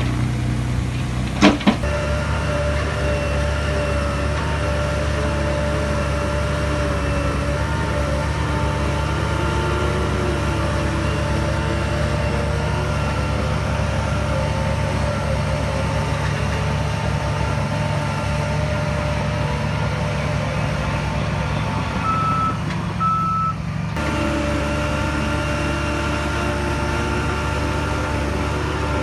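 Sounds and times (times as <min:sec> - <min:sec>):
heavy diesel machine running: 0:00.0 - 0:29.0
reverse alarm beeping: 0:22.0 - 0:23.6.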